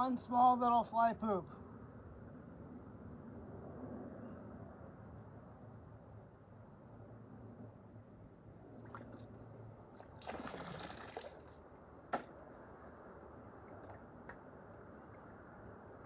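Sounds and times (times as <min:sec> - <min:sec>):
water sloshing in a pan: 0:08.8 - 0:11.6.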